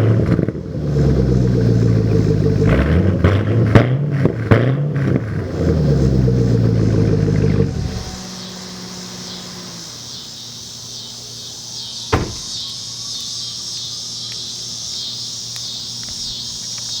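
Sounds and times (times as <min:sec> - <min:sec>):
insects chirping: 0:05.5 - 0:17.0.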